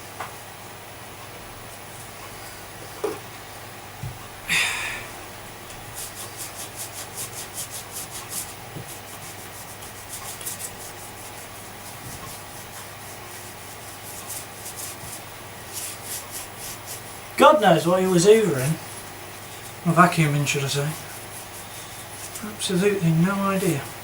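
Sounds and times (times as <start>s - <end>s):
rubbing strokes scrubbing: 5.8s - 23.8s.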